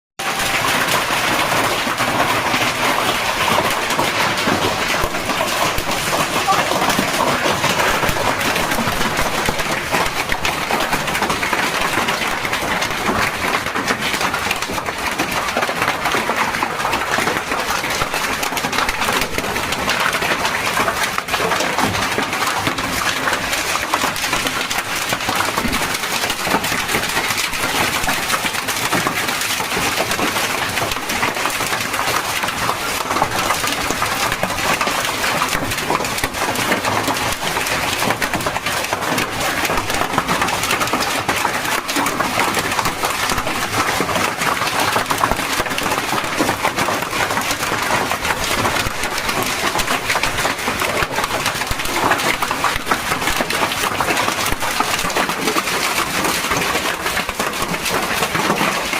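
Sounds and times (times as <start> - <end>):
hailstones striking hard surfaces: 0.2 - 58.9
heavy rain hissing: 0.3 - 9.7.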